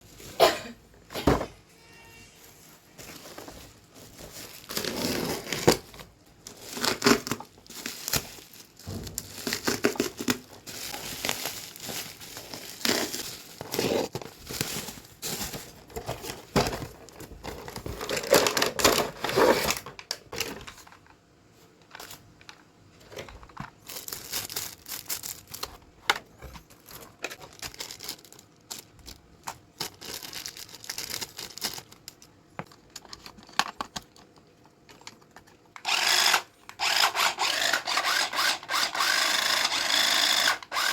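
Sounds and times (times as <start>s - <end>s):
plastic packaging crinkling and tearing: 2.9s - 21.0s, 23.1s - 26.0s, 26.6s - 36.0s.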